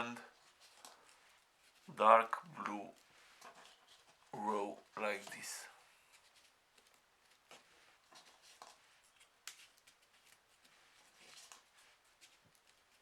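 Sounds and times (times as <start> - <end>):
paper rustling and clicking: 6.1 - 13.0.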